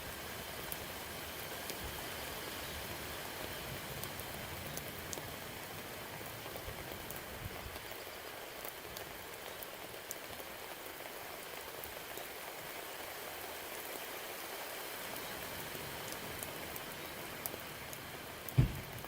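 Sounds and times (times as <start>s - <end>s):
rain falling: 0.0s - 19.0s
raindrops ticking: 3.6s - 14.0s, 14.6s - 19.0s.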